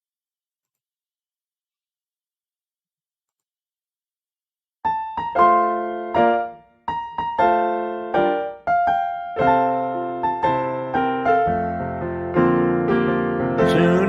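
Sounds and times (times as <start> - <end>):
piano chords and melody: 4.8 - 14.0.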